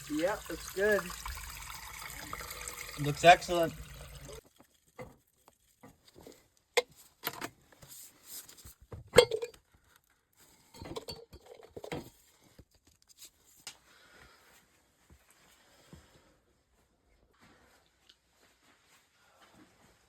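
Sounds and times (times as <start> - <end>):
hard objects clinking and knocking: 9.1 - 9.6, 10.7 - 12.2.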